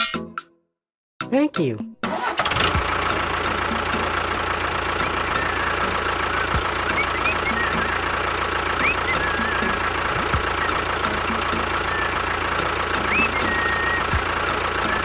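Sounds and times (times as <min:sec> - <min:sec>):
tractor engine idling: 0:02.1 - 0:15.0
light knocking beat: 0:09.1 - 0:11.9, 0:12.9 - 0:15.0.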